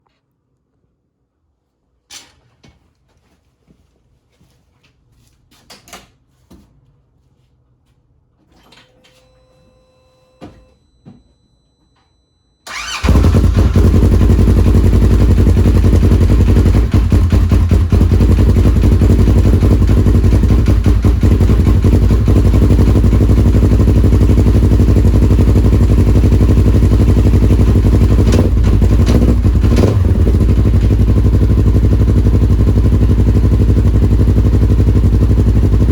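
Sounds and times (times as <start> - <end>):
brief tone: 8.6 - 12.7.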